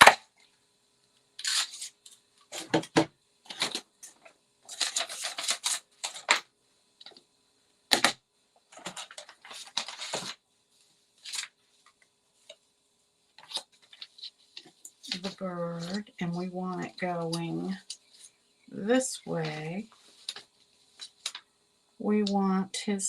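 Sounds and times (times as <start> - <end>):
paper rustling: 3.5 - 6.4, 8.7 - 10.4, 11.2 - 11.6, 13.4 - 16.1.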